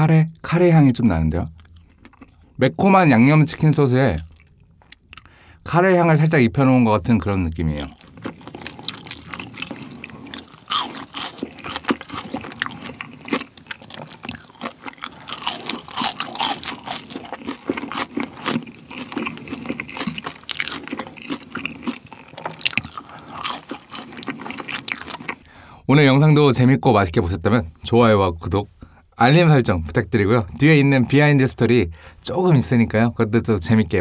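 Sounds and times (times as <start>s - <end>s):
chewing crunchy fries: 1.4s - 2.6s, 3.6s - 5.3s, 7.6s - 25.5s.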